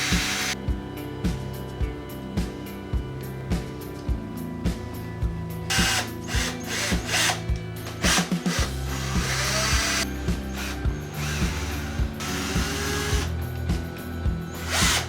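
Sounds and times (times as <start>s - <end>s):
electric hand drill whining: 0.0s - 0.6s, 5.7s - 13.4s, 14.5s - 15.0s
background music with beat: 0.0s - 15.0s.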